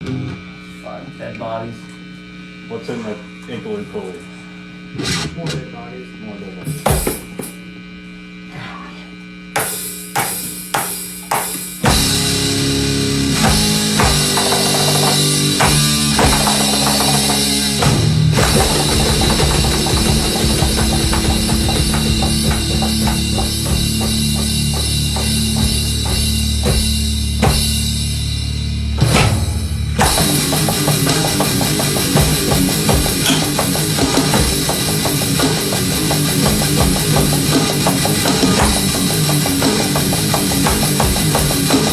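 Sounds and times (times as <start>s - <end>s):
drum hits: 6.7s - 7.6s, 9.6s - 28.2s, 29.0s - 41.9s
rock band playing: 11.4s - 41.9s
heavy bass line: 11.8s - 41.9s.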